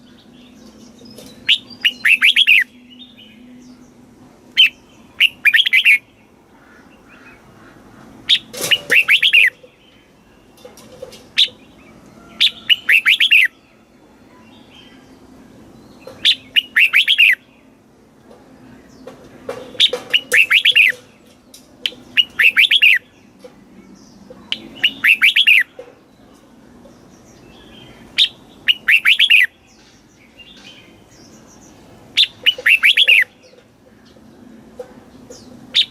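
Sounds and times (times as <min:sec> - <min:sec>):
bird singing slurred whistles: 0:01.4 - 0:03.5, 0:04.6 - 0:06.0, 0:12.5 - 0:13.5, 0:16.2 - 0:17.4, 0:20.2 - 0:20.9, 0:22.2 - 0:23.0, 0:24.5 - 0:25.7, 0:28.2 - 0:29.5, 0:32.2 - 0:33.3.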